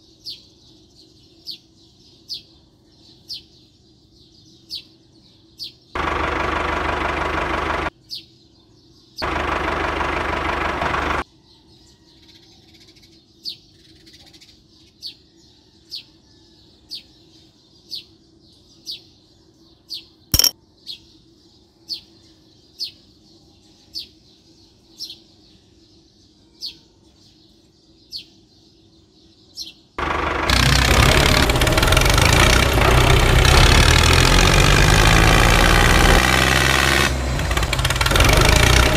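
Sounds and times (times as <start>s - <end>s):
toy tractor motor: 6.0s - 7.9s, 9.2s - 11.2s, 30.0s - 38.9s
sharp click: 20.4s - 20.6s.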